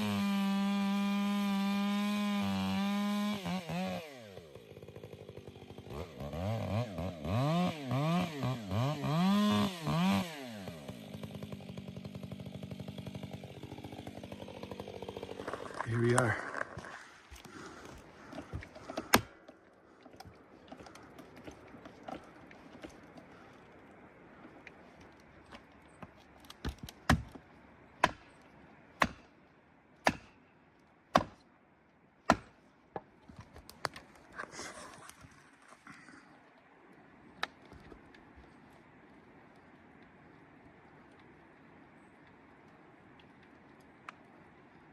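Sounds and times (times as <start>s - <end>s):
chainsaw engine revving: 0.0s - 19.4s.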